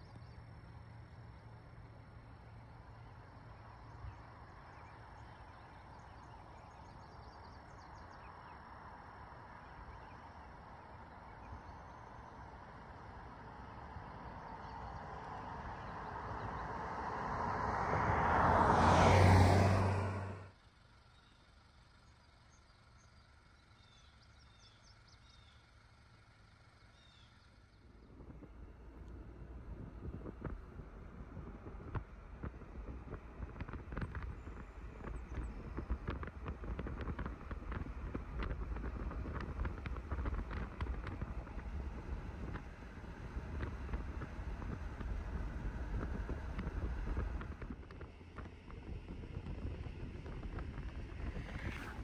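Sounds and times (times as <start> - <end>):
low rumble and hiss: 0.0 - 52.0
faint bird chirps: 20.6 - 28.2
wind rumbling on microphone: 28.0 - 52.0.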